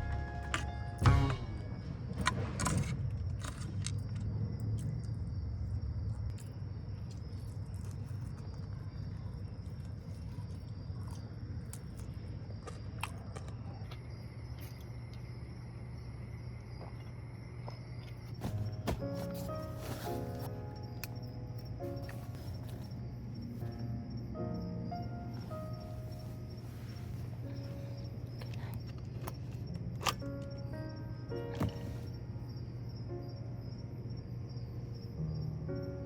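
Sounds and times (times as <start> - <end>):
insects chirring: 0.0 - 36.0
handling clicks and rustles: 18.1 - 23.6, 31.4 - 32.2.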